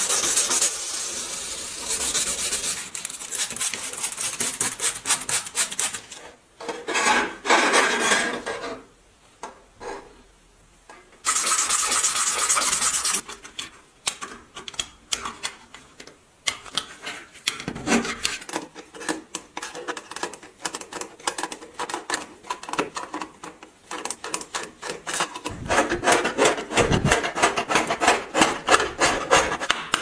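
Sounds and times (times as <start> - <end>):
scraping on metal parts: 24.8 - 29.7.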